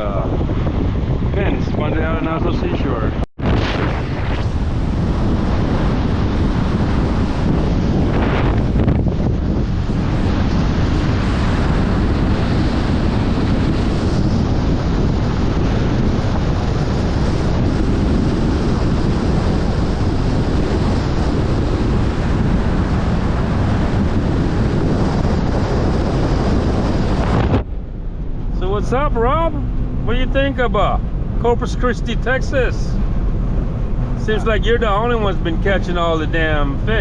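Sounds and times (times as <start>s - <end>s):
wind buffeting microphone: 0.0s - 37.0s
surf breaking on beach: 3.4s - 27.7s.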